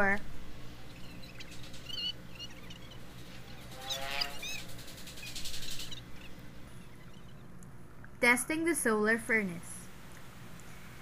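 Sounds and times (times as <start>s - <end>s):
birds chirping: 0.0s - 8.0s
faint steady hum: 0.0s - 11.0s.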